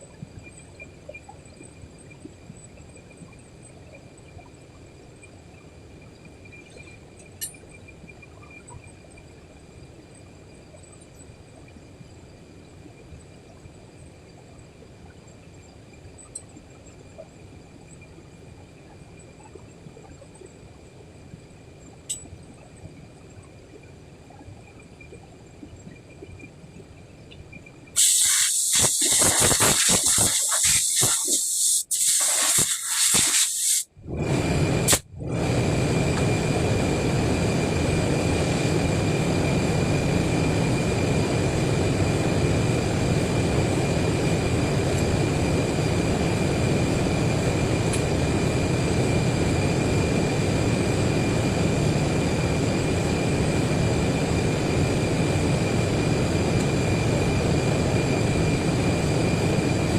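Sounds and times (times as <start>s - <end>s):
machine hissing: 28.0s - 35.0s
machine running with high tone: 28.0s - 35.0s.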